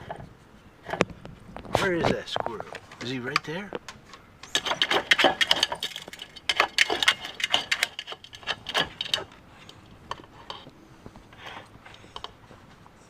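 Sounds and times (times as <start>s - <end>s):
rapid clicking and tapping: 3.8s - 9.4s.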